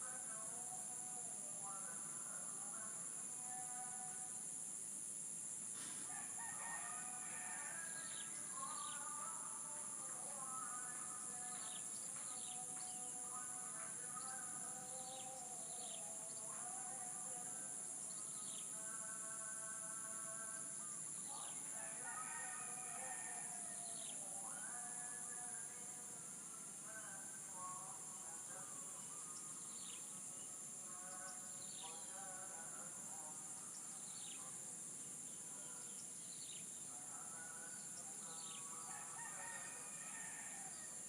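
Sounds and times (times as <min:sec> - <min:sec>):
crickets droning: 0:00.0 - 0:41.0
roosters crowing: 0:06.0 - 0:08.3, 0:21.8 - 0:24.0, 0:38.8 - 0:40.9.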